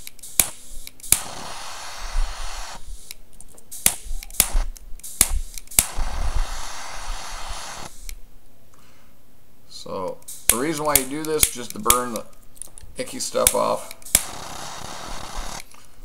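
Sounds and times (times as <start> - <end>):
jet flame hissing: 0.0 - 8.2, 10.2 - 11.9, 13.4 - 15.8.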